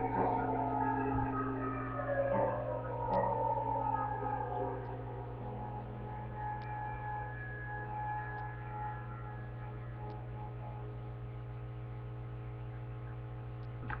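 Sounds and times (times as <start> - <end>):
music held notes: 0.0 - 13.2
low electrical hum: 0.0 - 14.0.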